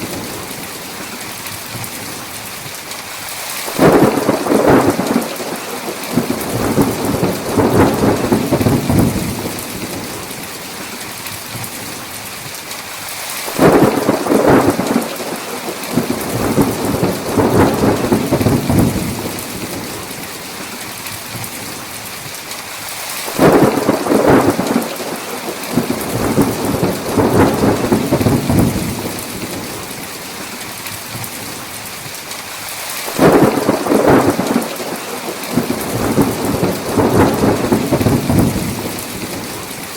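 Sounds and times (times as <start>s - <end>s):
heavy rain hiss: 0.0s - 39.9s
thunder clap and rumble: 3.7s - 10.5s, 13.6s - 20.2s, 23.4s - 30.1s, 33.1s - 39.9s.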